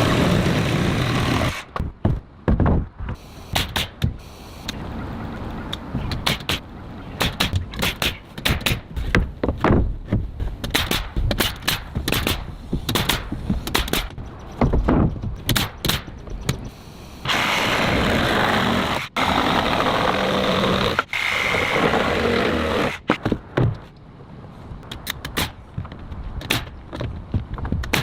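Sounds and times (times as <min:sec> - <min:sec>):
power tool running: 0:00.0 - 0:01.7, 0:17.3 - 0:23.0.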